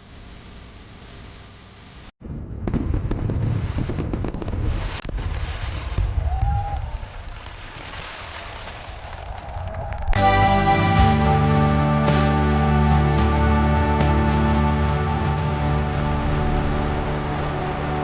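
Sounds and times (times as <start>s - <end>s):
low booming rumble: 2.2s - 4.8s, 12.0s - 18.0s
fireworks crackling pops: 2.6s - 10.2s.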